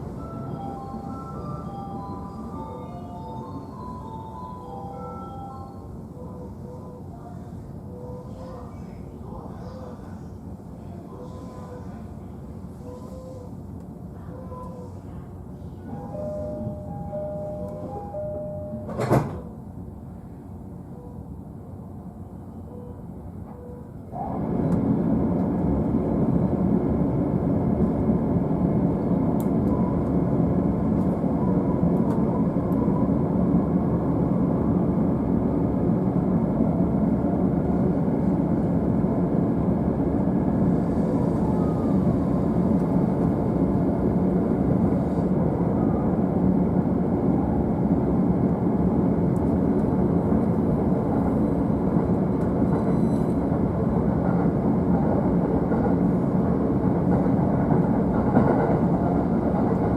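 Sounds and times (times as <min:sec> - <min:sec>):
train wheels rumbling on rail: 0:23.3 - 0:59.9.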